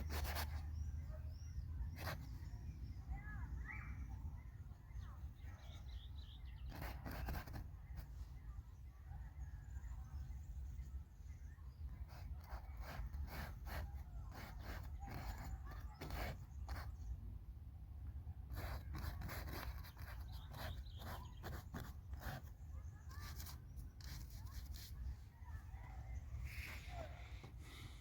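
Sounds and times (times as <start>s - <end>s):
paintbrush strokes on paper: 0.0s - 0.9s, 6.6s - 8.5s, 11.9s - 17.0s, 18.5s - 28.0s.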